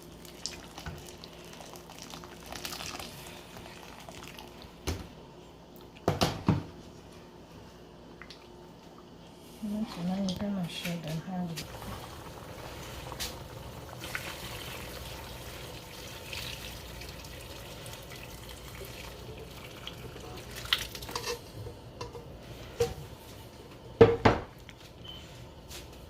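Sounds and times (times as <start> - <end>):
water running in sink: 10.0 - 21.2
kitchenware knocks and clatters: 24.0 - 24.5.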